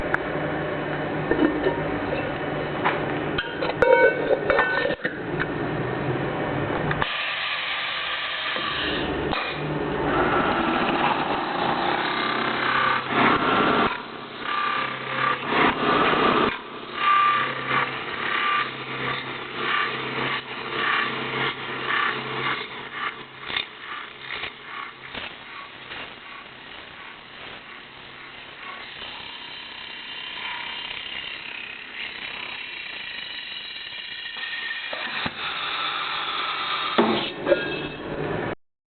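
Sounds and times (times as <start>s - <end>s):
machine hum: 0.0s - 38.6s
roller squealing on metal: 16.8s - 23.2s, 31.9s - 38.2s.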